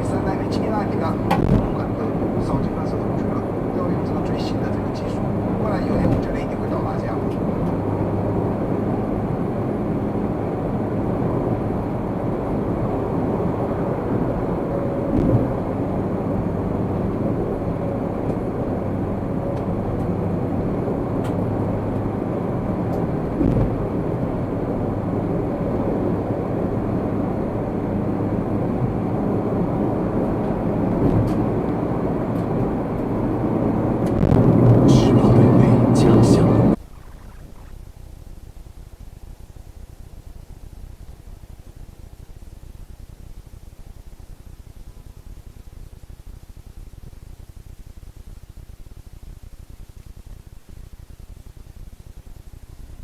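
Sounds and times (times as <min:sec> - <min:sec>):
car road and engine noise: 0:00.0 - 0:37.7.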